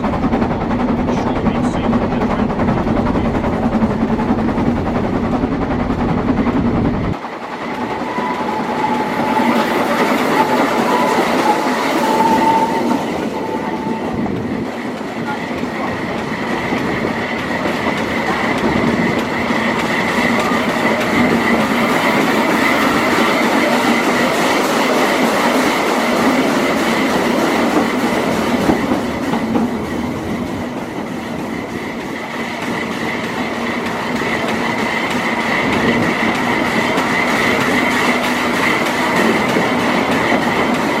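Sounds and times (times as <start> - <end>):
train wheels rumbling on rails: 0.0 - 41.0
high-pitched wheel squeal: 7.7 - 14.2.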